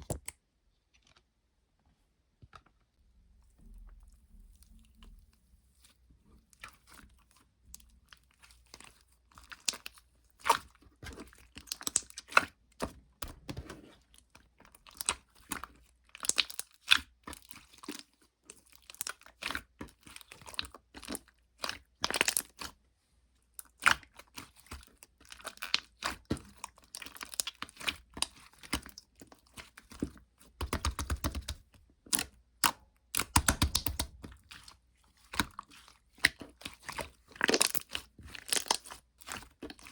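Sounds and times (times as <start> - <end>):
slime clicking and crackling: 8.6 - 12.5, 14.8 - 18.1, 23.7 - 39.9.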